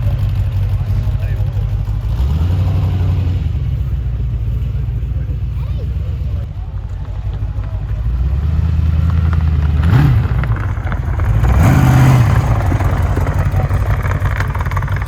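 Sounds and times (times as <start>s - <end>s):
engine idling and revving: 0.0s - 15.0s.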